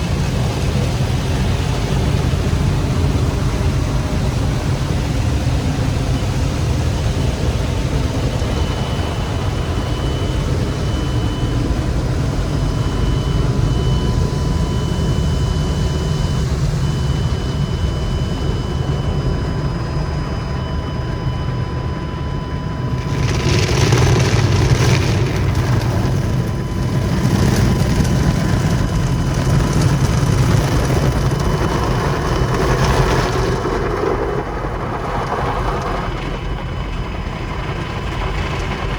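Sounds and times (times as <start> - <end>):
car wash machinery rumbling: 0.0 - 38.9
faint machine whine: 0.0 - 38.9
car wash water rushing: 22.8 - 38.9.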